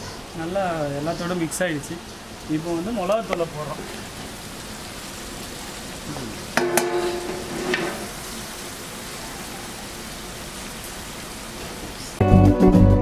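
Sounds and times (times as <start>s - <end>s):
masala sizzling in hot oil: 0.0s - 12.2s
metal utensil scraping pot: 6.6s - 8.2s.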